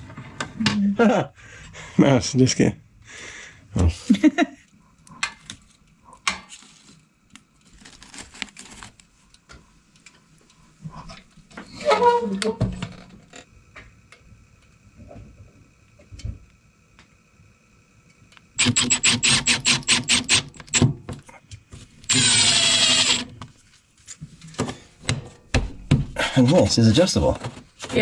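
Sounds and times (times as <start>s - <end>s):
drill motor high whine: 18.6s - 20.8s, 22.1s - 23.3s
power drill clicking pulses: 18.6s - 20.8s, 22.1s - 23.3s.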